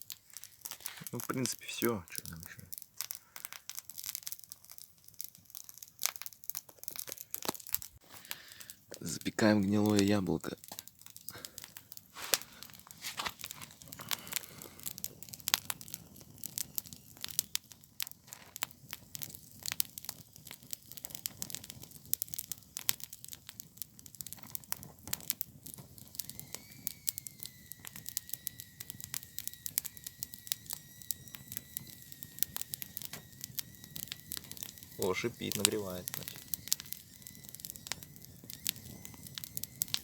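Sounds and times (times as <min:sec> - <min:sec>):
campfire crackling: 0:00.0 - 0:40.0
high steam whistle: 0:25.9 - 0:40.0.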